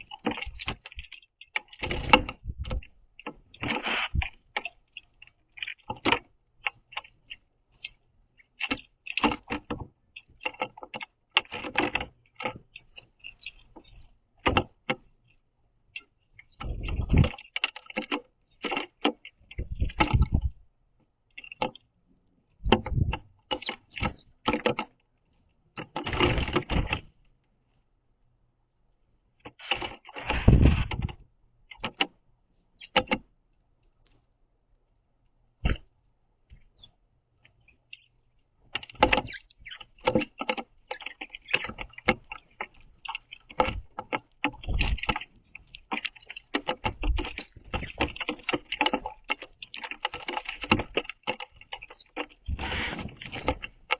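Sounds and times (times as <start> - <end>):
faint high bird chirps: 0.0 - 1.6, 12.7 - 14.1, 15.9 - 17.6, 23.5 - 24.4, 32.5 - 33.0, 34.0 - 34.3, 39.2 - 39.9, 47.2 - 49.1, 51.4 - 53.6
birds pecking at seed: 0.0 - 53.9.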